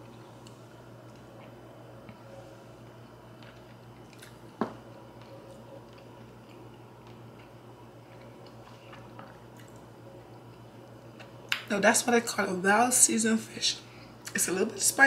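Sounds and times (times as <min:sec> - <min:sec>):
person chewing: 0:00.0 - 0:11.6
steady low hum: 0:00.0 - 0:15.0.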